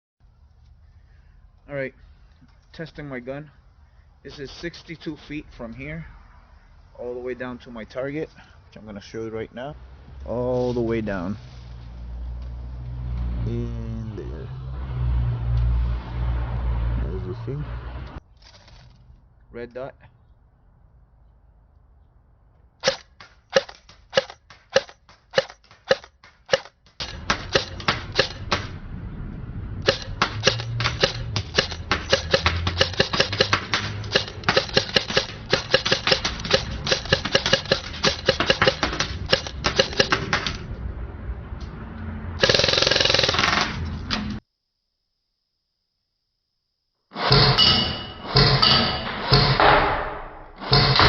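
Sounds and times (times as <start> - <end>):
airsoft gun firing: 22.8 - 28.8, 29.8 - 40.6, 42.4 - 43.8.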